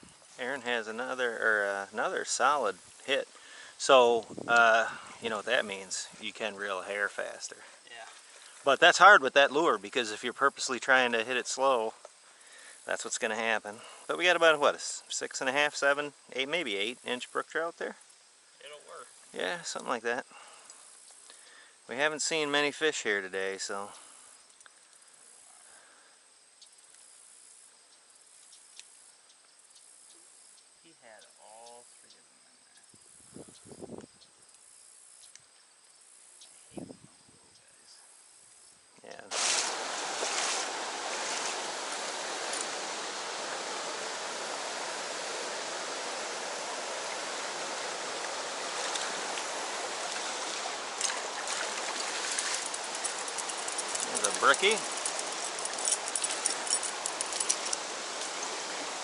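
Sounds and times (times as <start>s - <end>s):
crickets chirring: 0.0s - 59.0s
faint ticks: 20.6s - 21.6s, 23.9s - 25.4s, 26.6s - 27.2s, 27.8s - 32.9s, 33.5s - 35.7s, 51.0s - 58.5s
flowing stream water: 39.3s - 59.0s.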